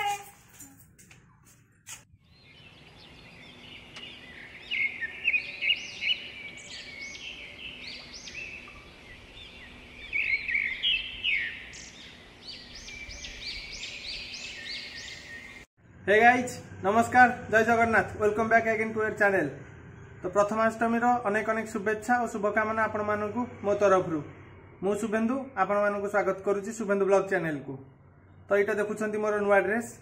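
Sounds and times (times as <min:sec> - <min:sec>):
birds chirping and singing: 0:02.2 - 0:15.7.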